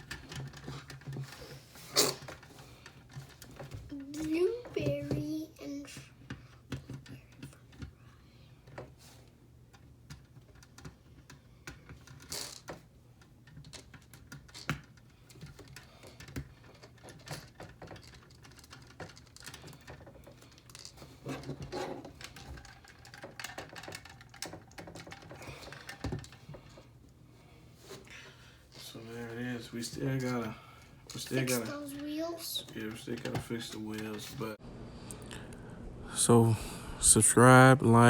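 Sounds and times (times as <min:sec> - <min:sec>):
plastic parts clicking together: 0:09.7 - 0:26.6.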